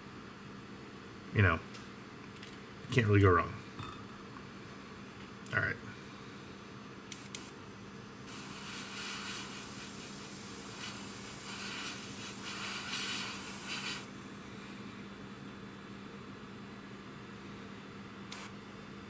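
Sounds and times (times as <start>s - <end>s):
airbrush spraying hiss: 8.3s - 14.1s.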